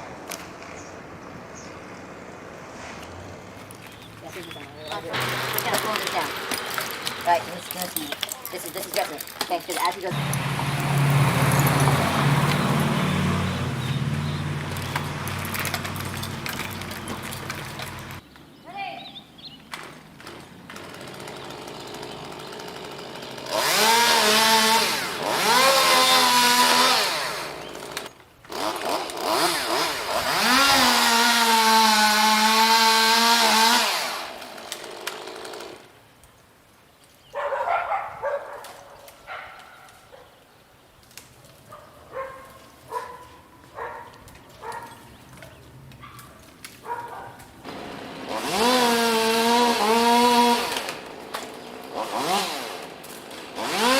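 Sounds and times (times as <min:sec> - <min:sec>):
chainsaw revving: 0:04.9 - 0:09.0, 0:09.7 - 0:18.2, 0:20.3 - 0:35.9, 0:47.6 - 0:53.9.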